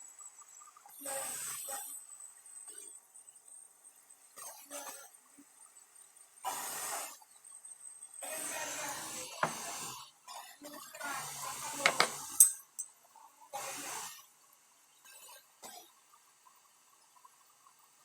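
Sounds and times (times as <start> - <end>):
metal and glass clinks: 11.9 - 12.9.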